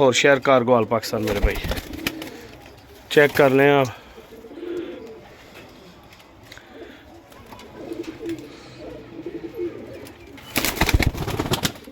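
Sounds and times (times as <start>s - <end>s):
pigeons cooing: 1.5s - 11.9s.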